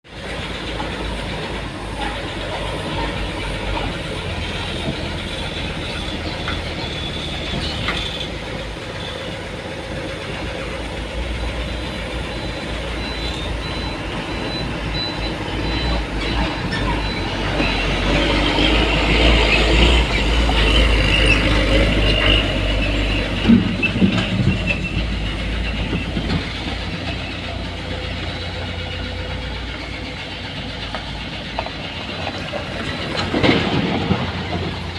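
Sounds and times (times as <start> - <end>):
diesel engine rumble: 0.0 - 34.9
high squeal: 4.1 - 30.8.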